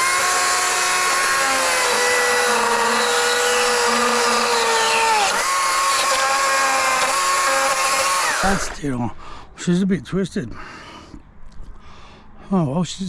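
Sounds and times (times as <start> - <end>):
power carving tool whining: 0.0 - 8.8.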